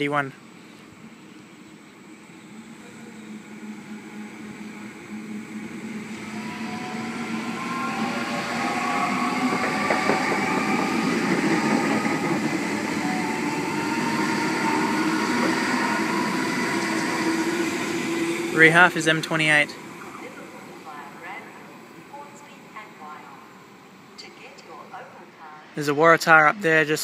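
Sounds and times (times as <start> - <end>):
train rumble: 1.0 - 25.9
train motor whine: 1.5 - 23.1.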